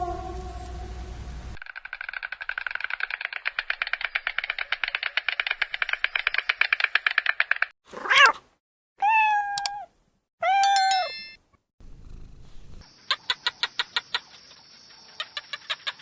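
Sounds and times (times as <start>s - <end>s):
fast rattling clicks: 1.6s - 7.8s
cat meowing: 8.0s - 8.4s, 9.0s - 11.1s.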